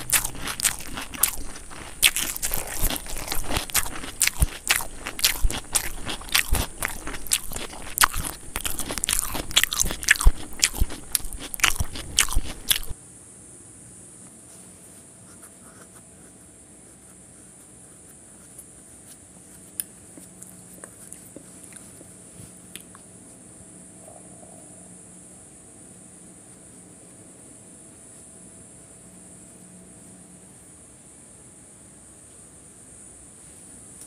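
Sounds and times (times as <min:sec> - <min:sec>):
crunchy food being chewed: 0:00.0 - 0:13.0, 0:17.1 - 0:23.4.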